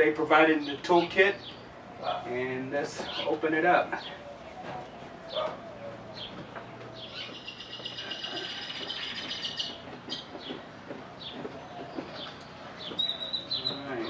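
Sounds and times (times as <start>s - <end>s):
small birds chirping: 0.5s - 14.0s
rapid high bird trill: 7.0s - 10.3s.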